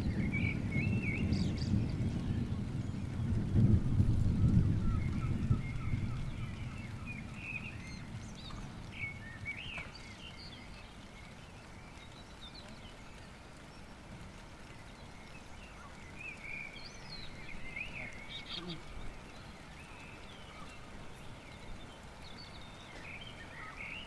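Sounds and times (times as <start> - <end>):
thunder rumble: 0.0 - 9.5
birds chirping: 4.3 - 24.0.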